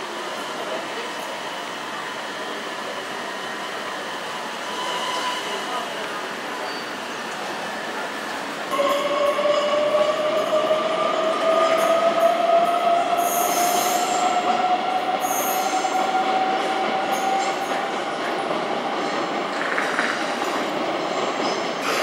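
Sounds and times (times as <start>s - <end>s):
electric train whine: 0.0s - 20.7s
train wheels screeching: 4.4s - 5.8s, 6.4s - 18.2s.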